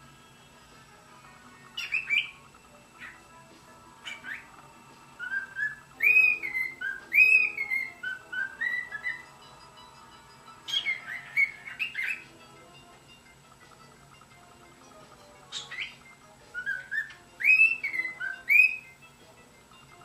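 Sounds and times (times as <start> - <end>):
cockatiel whistling: 1.7 - 2.4, 3.0 - 3.2, 4.0 - 9.4, 10.6 - 12.3, 15.5 - 19.0.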